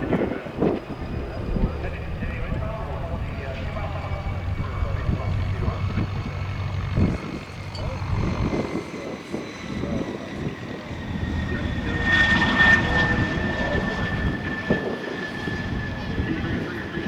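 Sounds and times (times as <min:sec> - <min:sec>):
propeller airplane engine passing: 0:00.0 - 0:17.0.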